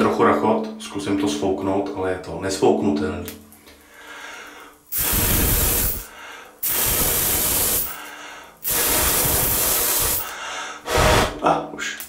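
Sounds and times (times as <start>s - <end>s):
person blowing hard: 5.0s - 8.0s, 8.6s - 11.4s.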